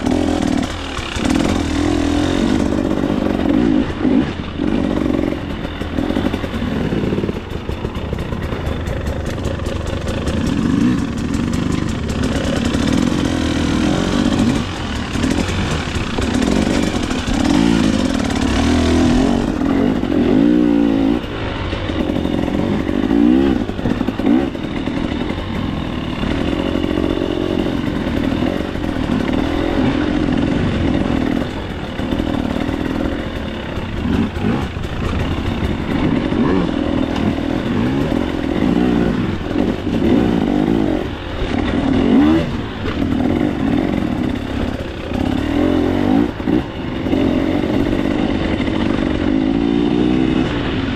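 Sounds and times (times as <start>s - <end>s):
two-stroke engine revving: 0.0s - 50.9s
bike clattering over rough ground: 4.6s - 20.2s, 20.8s - 40.3s.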